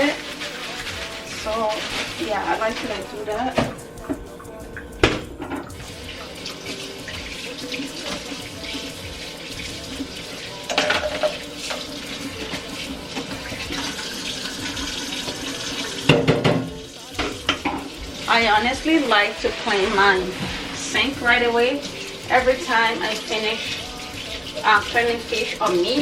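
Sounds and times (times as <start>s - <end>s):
tap running into sink: 2.8s - 8.8s, 9.6s - 18.9s.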